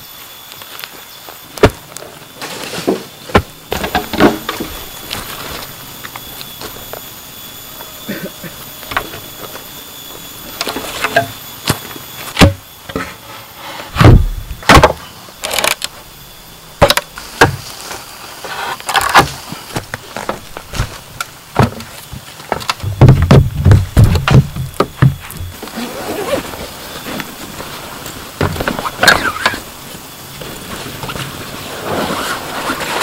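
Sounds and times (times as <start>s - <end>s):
knocks and clatters of hard objects: 18.9s - 25.6s.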